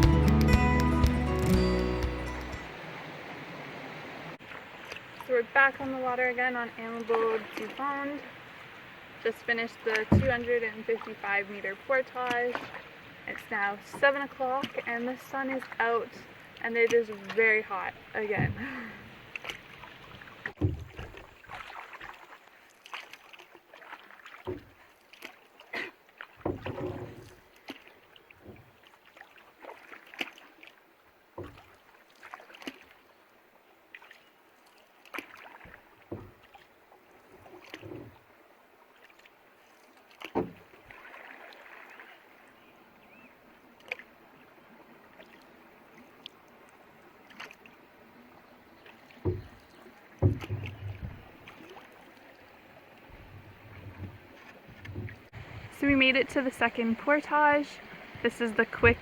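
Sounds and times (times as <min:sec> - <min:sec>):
canoe paddles splashing: 0:00.0 - 0:59.0
sharp paddle knocks: 0:50.2 - 0:51.2.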